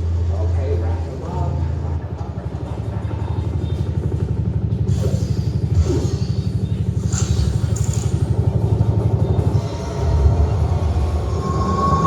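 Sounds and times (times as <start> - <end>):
pulsing bass rumble: 0.0 - 12.0
hissing sweeps: 9.6 - 12.0.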